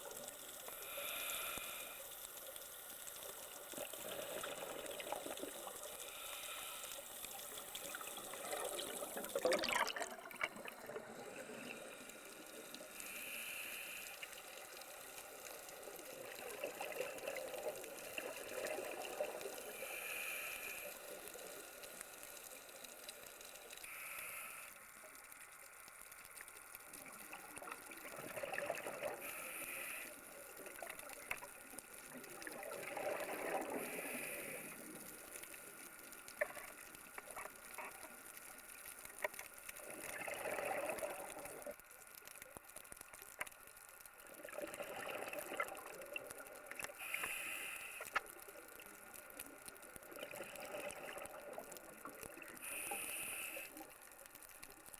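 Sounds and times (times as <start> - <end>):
regulator inhale hiss: 0.1 - 3.2, 3.8 - 9.2, 11.1 - 15.9, 17.9 - 25.2, 29.1 - 30.6, 33.6 - 36.0, 46.8 - 48.3, 52.5 - 54.1
exhaled bubbles gushing: 3.7 - 6.0, 7.7 - 12.8, 15.8 - 19.7, 27.0 - 29.2, 32.0 - 35.2, 39.8 - 41.8, 44.3 - 46.9, 48.7 - 52.6.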